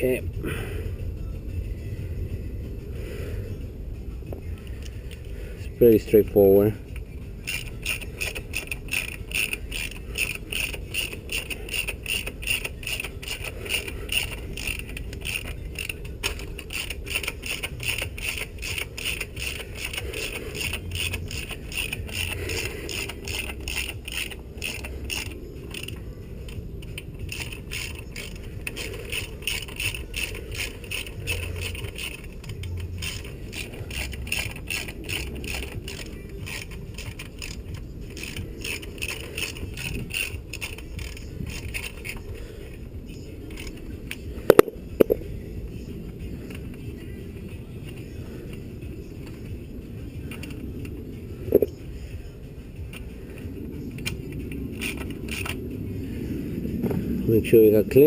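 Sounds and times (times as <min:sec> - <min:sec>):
socket ratchet clicking: 0:06.9 - 0:42.4, 0:43.5 - 0:45.3, 0:50.2 - 0:51.8, 0:52.8 - 0:55.8.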